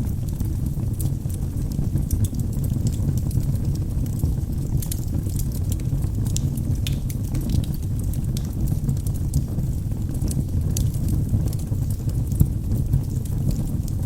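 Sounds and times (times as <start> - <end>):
fire flames rumbling: 0.0 - 14.0
logs crackling and popping: 0.0 - 14.0.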